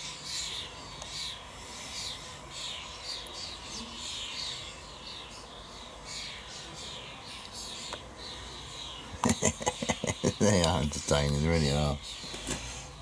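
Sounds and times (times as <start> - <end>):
starlings chirping: 0.0 - 13.0.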